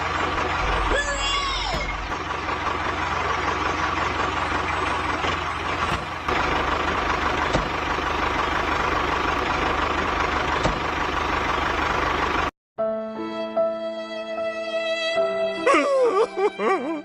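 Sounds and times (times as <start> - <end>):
tractor engine running: 0.0 - 12.5.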